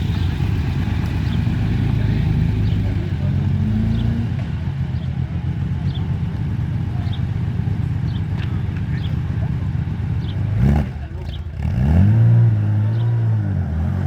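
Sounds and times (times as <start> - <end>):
car engines rumbling: 0.0 - 14.0.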